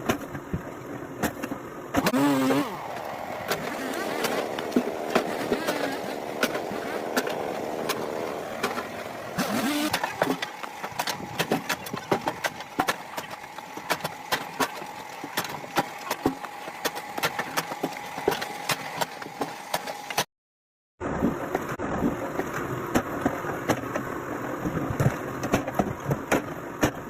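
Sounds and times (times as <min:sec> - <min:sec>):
engine running: 0:00.0 - 0:20.3
sharp irregular clicks and knocks: 0:02.9 - 0:20.3, 0:21.5 - 0:27.0.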